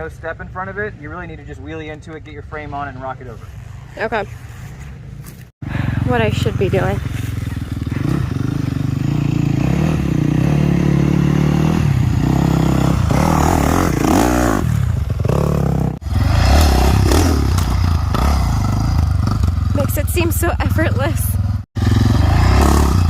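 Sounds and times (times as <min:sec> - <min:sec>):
dirt bike engine revving: 0:05.7 - 0:23.0.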